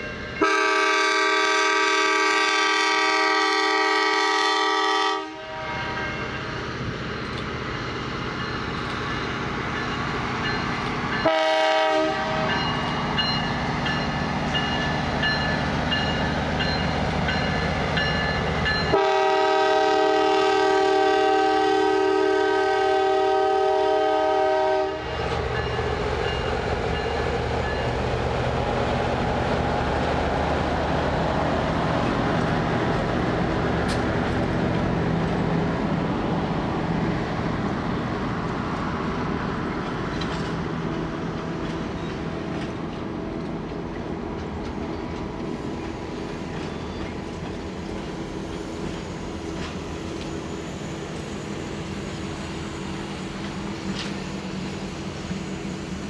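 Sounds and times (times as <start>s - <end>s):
train wheels rumbling on rail: 0.0s - 56.0s
train air horn blast: 0.4s - 6.4s, 11.2s - 12.6s, 18.9s - 25.2s.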